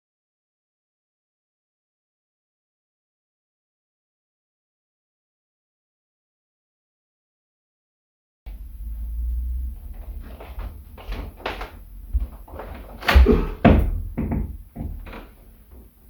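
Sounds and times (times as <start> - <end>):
irregular knocks and thumps: 8.5 - 16.0
low rumble: 8.5 - 16.0.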